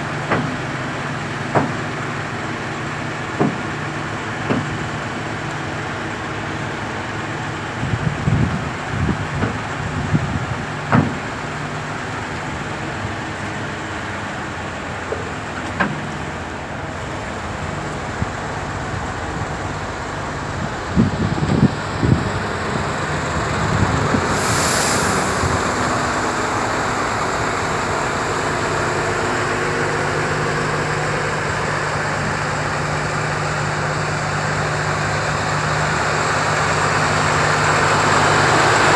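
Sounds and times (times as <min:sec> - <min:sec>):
diesel truck engine running: 0:00.0 - 0:38.9
air hiss: 0:24.1 - 0:28.8.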